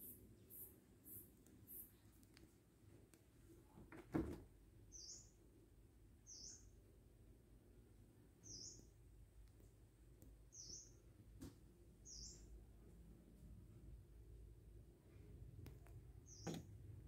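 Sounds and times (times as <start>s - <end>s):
faint bird chirp: 0.0s - 2.2s, 4.9s - 5.4s, 6.2s - 6.9s, 8.4s - 9.0s, 10.4s - 11.1s, 12.0s - 12.6s, 16.2s - 16.7s.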